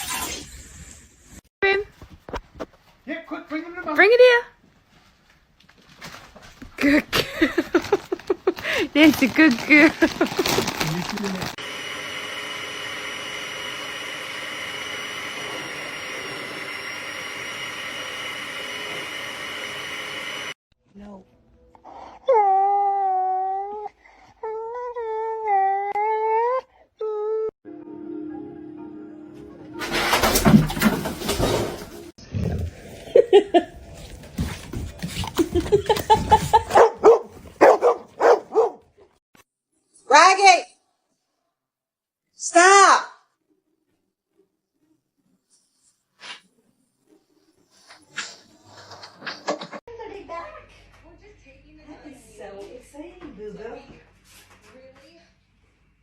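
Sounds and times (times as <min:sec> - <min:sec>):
machine whine: 0:11.6 - 0:20.6
dog barking: 0:36.7 - 0:38.9.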